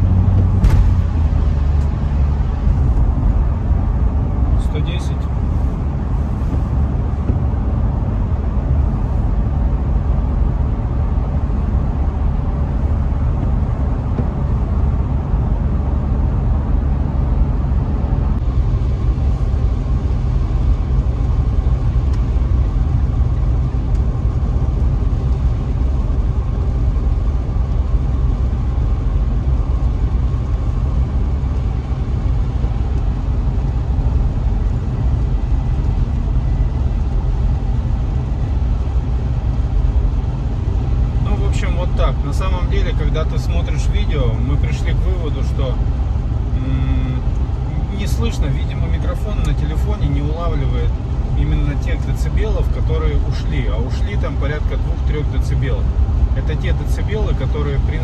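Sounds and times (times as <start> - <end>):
car cabin road and engine rumble: 0.0 - 58.0.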